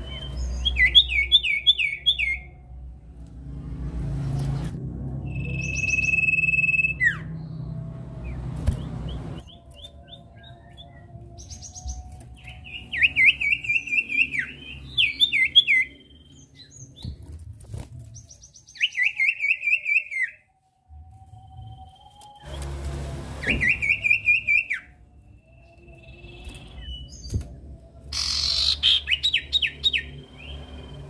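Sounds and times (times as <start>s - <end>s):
bird whistling and chirping: 0.0s - 2.5s, 5.3s - 7.6s, 8.7s - 17.2s, 18.2s - 20.5s, 23.4s - 27.4s, 28.1s - 31.0s.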